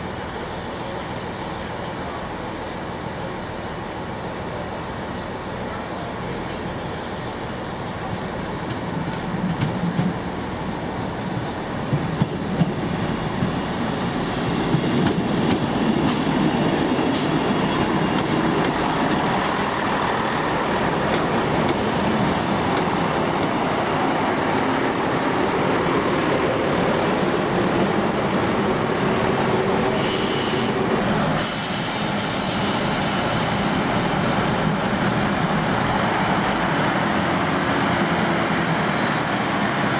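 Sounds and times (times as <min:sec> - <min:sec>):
train rumble: 0:06.5 - 0:39.9.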